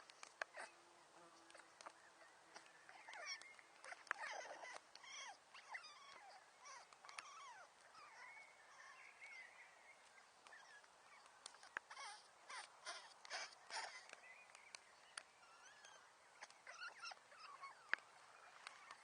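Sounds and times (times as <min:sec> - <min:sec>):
chirps: 0:01.5 - 0:19.0.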